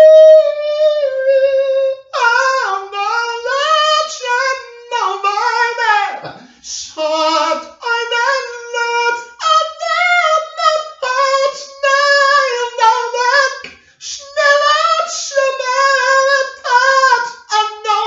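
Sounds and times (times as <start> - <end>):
high voice singing unaccompanied: 0.0 - 18.0
singer breathing: 6.4 - 6.7, 13.7 - 14.0.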